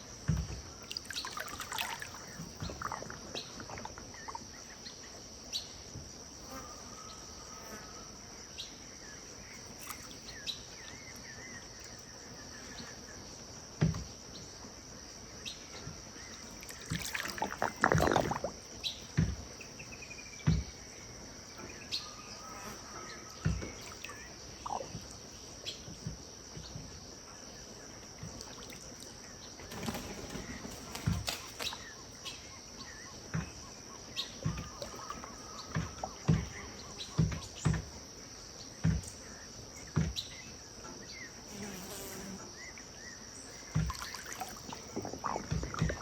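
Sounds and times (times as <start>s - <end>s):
insect chorus: 0.0s - 46.0s
low knocks and thumps: 44.7s - 46.0s.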